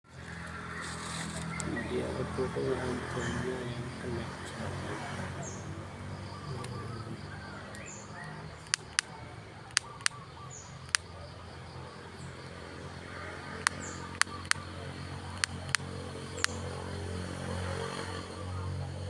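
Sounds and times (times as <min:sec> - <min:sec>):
small birds chirping: 0:00.1 - 0:19.0
sharp loud clicks: 0:08.6 - 0:10.2, 0:10.8 - 0:11.1, 0:13.6 - 0:14.7, 0:15.3 - 0:16.8.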